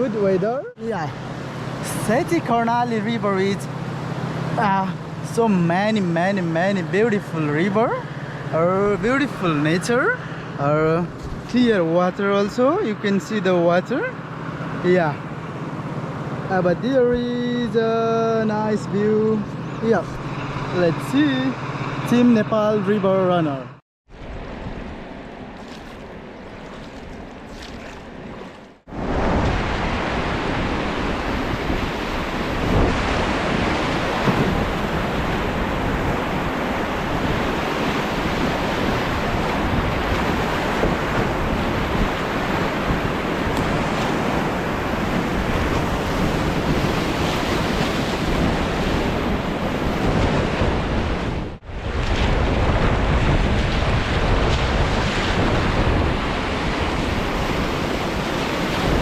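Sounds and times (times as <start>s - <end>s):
wind buffeting microphone: 24.1s - 59.0s
rushing river water: 24.9s - 53.0s, 53.6s - 59.0s.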